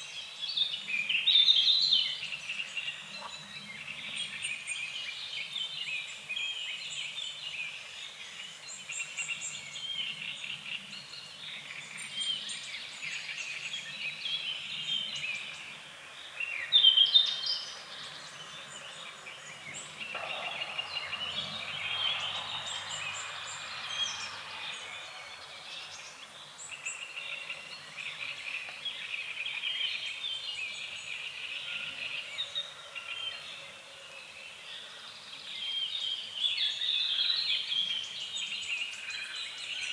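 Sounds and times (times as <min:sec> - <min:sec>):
birds chirping: 0:00.0 - 0:39.9
frogs croaking: 0:17.8 - 0:28.8.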